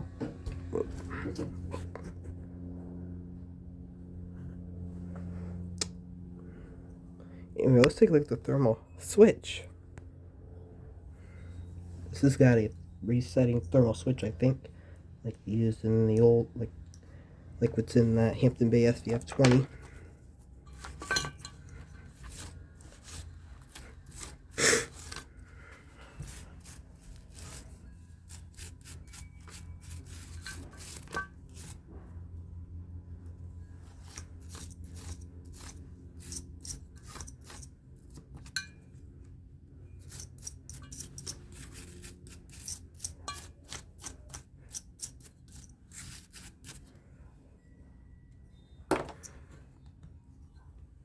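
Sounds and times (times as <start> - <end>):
steady low hum: 0.0 - 51.0
parts clicking and knocking: 18.9 - 31.9, 48.9 - 50.2.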